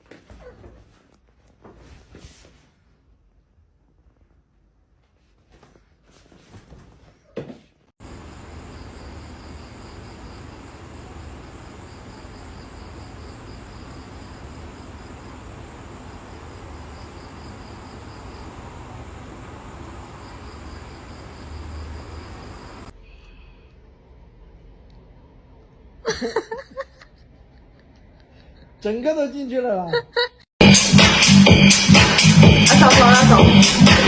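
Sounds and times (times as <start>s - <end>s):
insects trilling: 8.0s - 22.9s
steady background hiss: 8.0s - 22.9s.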